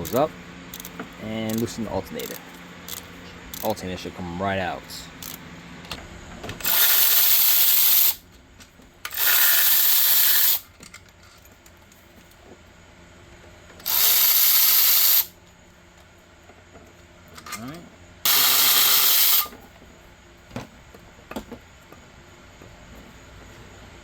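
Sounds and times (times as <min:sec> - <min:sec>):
power ratchet spinning bolts: 0:00.0 - 0:03.8, 0:05.2 - 0:05.4, 0:06.6 - 0:08.2, 0:09.0 - 0:10.7, 0:13.8 - 0:15.3, 0:18.3 - 0:19.6.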